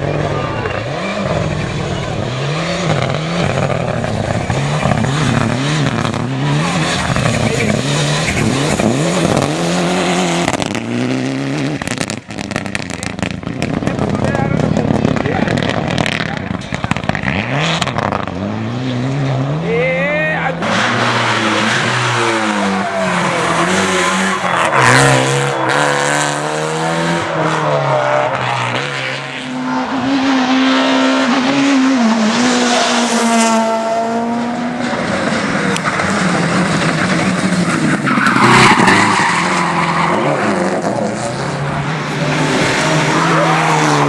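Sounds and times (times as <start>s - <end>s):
rally car engines revving: 0.0s - 44.0s
tyres squealing and skidding: 4.4s - 10.8s, 20.5s - 26.0s, 27.2s - 44.0s.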